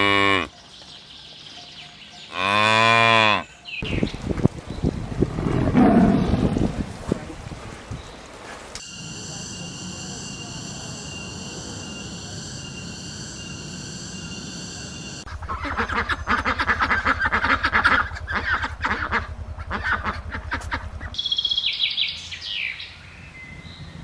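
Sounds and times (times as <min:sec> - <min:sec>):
steady background hum: 0:08.8 - 0:24.0.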